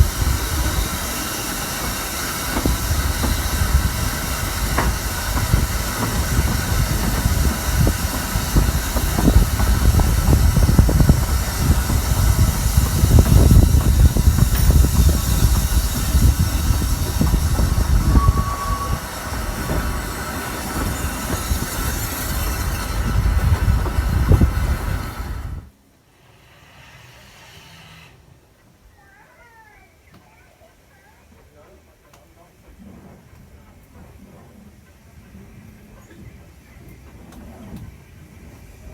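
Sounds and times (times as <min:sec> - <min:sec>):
wind buffeting microphone: 0:00.0 - 0:25.7
steam train running: 0:00.0 - 0:28.0, 0:31.0 - 0:38.9
rail noise: 0:00.0 - 0:28.3, 0:31.3 - 0:38.9
steam hiss: 0:00.0 - 0:28.4.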